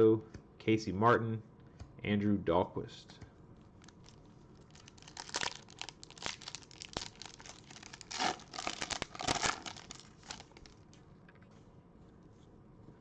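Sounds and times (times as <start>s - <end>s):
wrapper ripping: 3.8s - 10.9s
wrapper crinkling: 3.8s - 11.0s.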